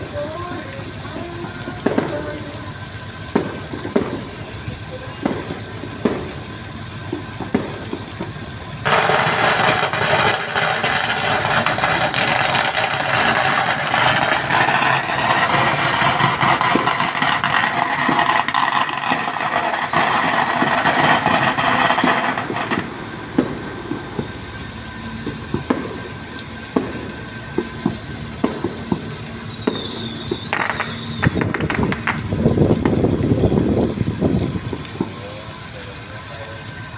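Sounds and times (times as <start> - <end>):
loud rushing hiss: 0.0 - 36.9
brief high squeal: 29.5 - 31.4.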